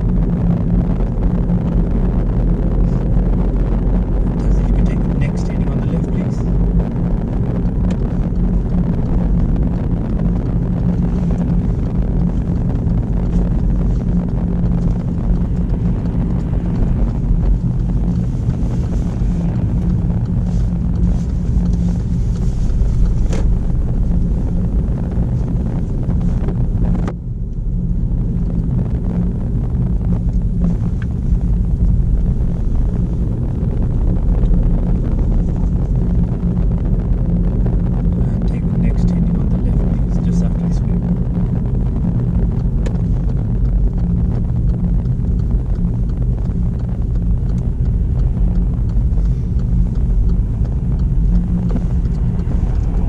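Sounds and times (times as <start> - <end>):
car engine and road rumble: 0.0 - 53.0.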